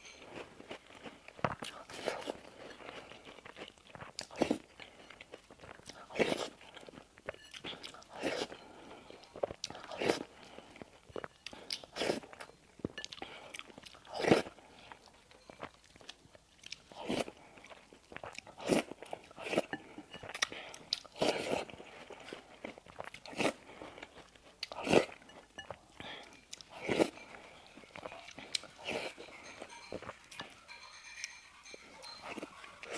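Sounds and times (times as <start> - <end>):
crunchy bites and chewing: 0.2 - 8.6.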